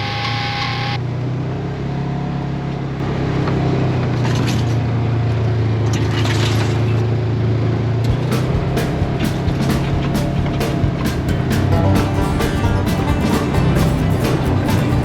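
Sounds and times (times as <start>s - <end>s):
utility vehicle engine running: 0.0s - 2.0s, 7.7s - 15.0s.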